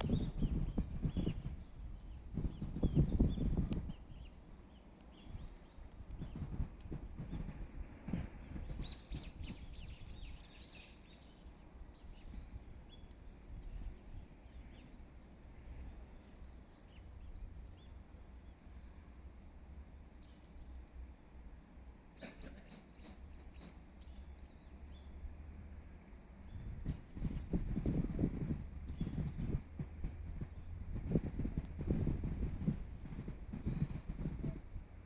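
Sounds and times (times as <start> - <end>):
small birds chirping: 0.0 - 7.7, 8.4 - 19.1, 19.8 - 21.0, 22.2 - 25.3, 25.9 - 34.8
low background rumble: 24.0 - 35.0.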